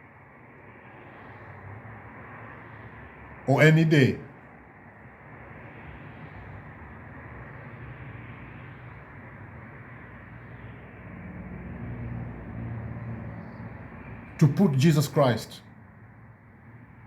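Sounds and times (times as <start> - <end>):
low rumble and hiss: 3.5 - 4.8.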